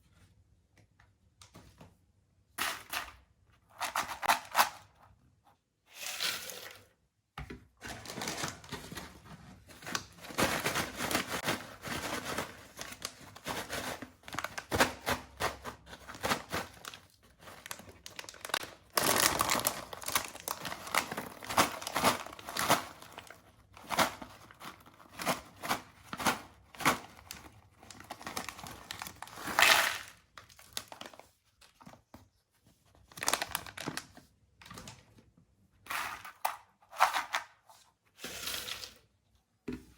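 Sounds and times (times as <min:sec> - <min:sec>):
plastic snack packets crinkling: 0:07.8 - 0:31.9, 0:33.0 - 0:35.1.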